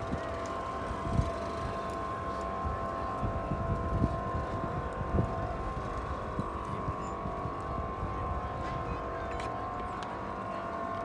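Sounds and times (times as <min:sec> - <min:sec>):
wind buffeting microphone: 0:00.0 - 0:01.8, 0:02.7 - 0:09.2.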